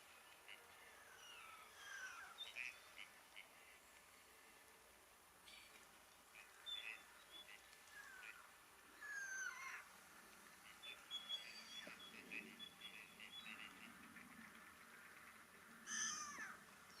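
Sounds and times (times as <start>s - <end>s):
small birds chirping: 0.0s - 4.0s, 5.4s - 14.6s.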